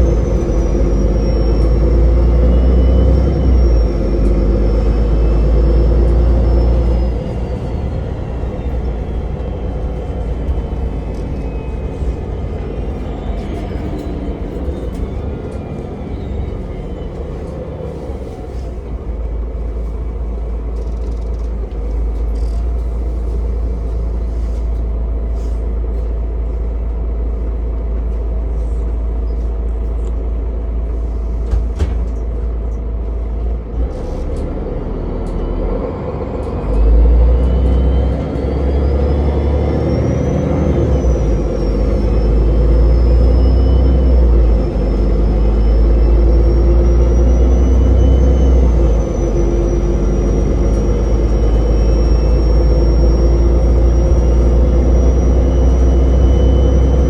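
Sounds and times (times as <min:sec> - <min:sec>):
bus engine and road rumble: 0:00.0 - 0:57.0
high whine: 0:37.3 - 0:57.0.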